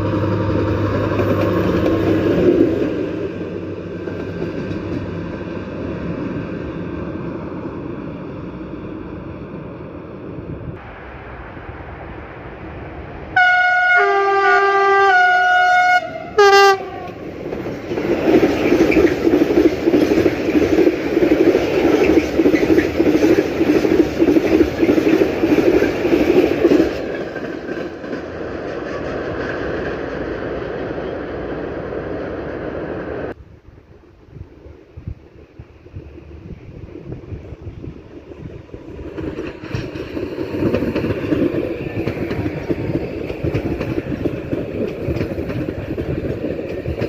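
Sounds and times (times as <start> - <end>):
train wheel clatter: 0.0 - 5.6, 16.7 - 30.6, 38.8 - 47.0
train horn blasts: 13.4 - 17.2.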